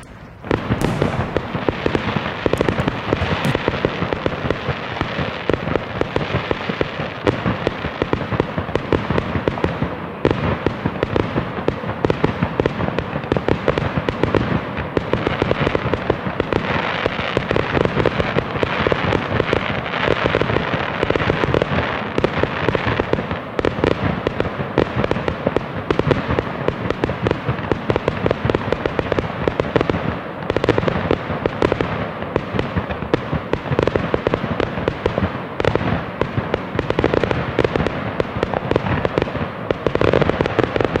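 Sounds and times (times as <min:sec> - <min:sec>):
firecrackers popping: 0:00.0 - 0:41.0.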